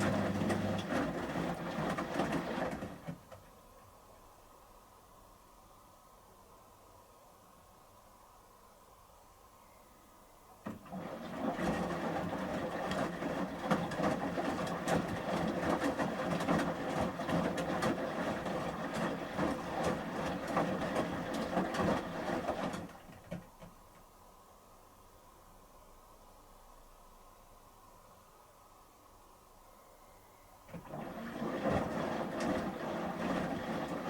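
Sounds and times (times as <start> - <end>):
water sloshing: 0.0 - 3.2, 10.7 - 23.3
washing machine drum turning: 0.0 - 3.4, 10.6 - 23.8, 30.7 - 34.0
wet clothes tumbling with knocks: 0.0 - 3.4, 10.7 - 23.8, 30.7 - 34.0.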